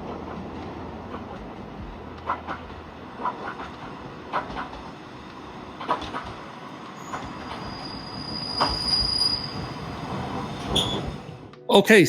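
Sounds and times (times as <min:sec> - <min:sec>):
train wheels clacking over joints: 0:00.0 - 0:11.4
high wheel squeal: 0:07.0 - 0:11.4.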